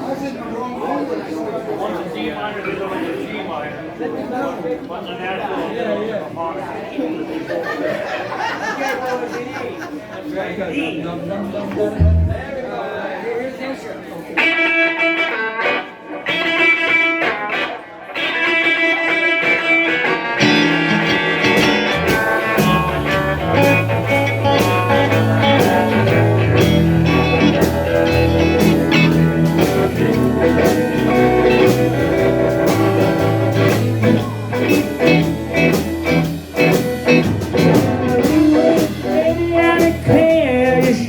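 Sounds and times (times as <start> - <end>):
electric guitar playing blues: 11.9 - 12.6, 14.4 - 41.0
bass line: 12.0 - 12.6, 20.4 - 41.0
drums: 12.0 - 12.6, 14.5 - 41.0.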